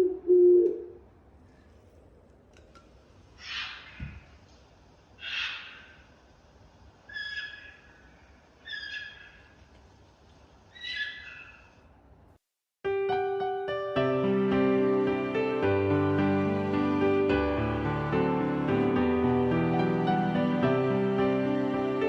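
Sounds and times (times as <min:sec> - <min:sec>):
faint forest background: 0:03.2 - 0:22.0
kingfisher rolling calls: 0:05.2 - 0:06.0, 0:07.1 - 0:09.5.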